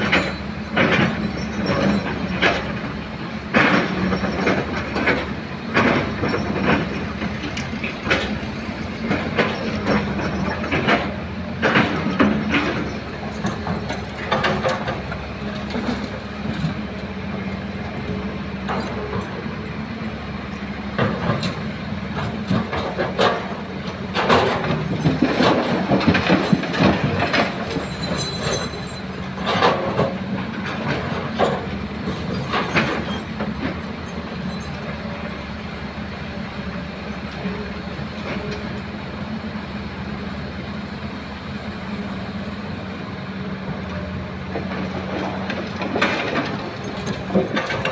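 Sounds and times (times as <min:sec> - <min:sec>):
metal clanks and scraping: 0:00.0 - 0:16.8, 0:21.0 - 0:35.0, 0:44.6 - 0:47.9
excavator diesel engine: 0:00.0 - 0:47.9.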